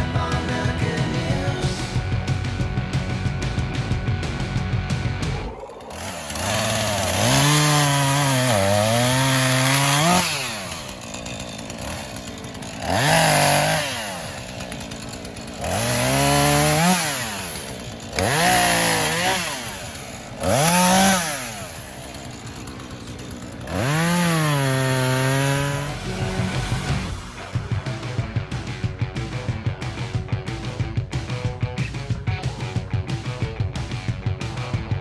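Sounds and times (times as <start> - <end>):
chainsaw revving and cutting wood: 0.0 - 35.0.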